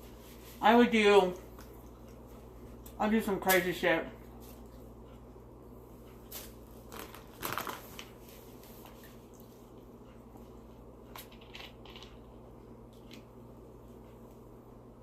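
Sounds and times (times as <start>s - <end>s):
low steady hum: 0.0s - 15.0s
crunching while eating: 6.2s - 8.2s, 11.1s - 13.3s.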